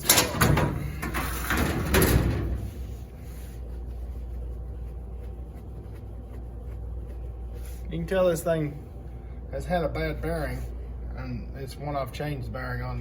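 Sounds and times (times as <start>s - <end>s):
scraping and rustling of dryer parts: 0.0s - 8.8s
steady low hum: 0.0s - 13.0s.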